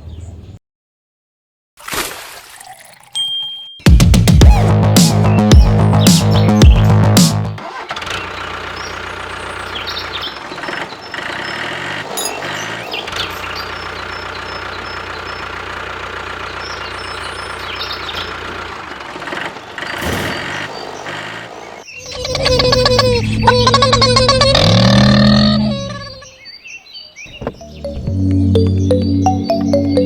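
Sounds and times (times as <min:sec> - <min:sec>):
small diesel engine running: 0:05.5 - 0:26.1.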